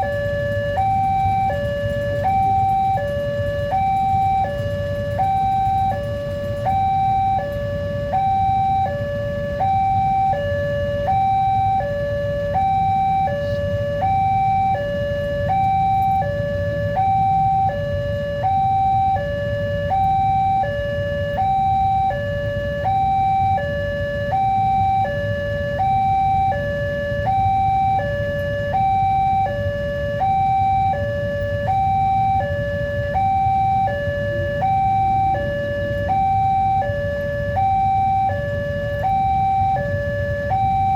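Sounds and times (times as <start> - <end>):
level crossing two-tone alarm: 0.0 - 40.9.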